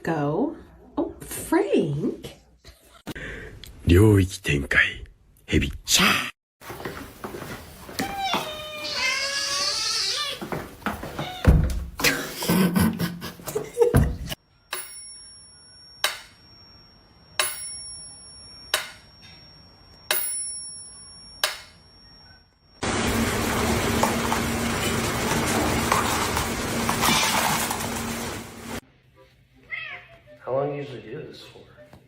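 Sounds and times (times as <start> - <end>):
sharp ringing clinks: 14.7 - 22.4.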